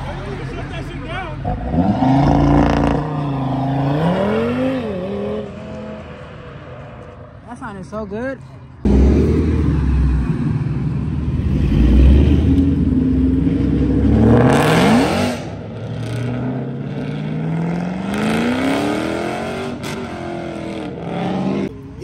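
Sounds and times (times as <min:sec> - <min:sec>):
car engine accelerating hard: 0:08.8 - 0:21.7.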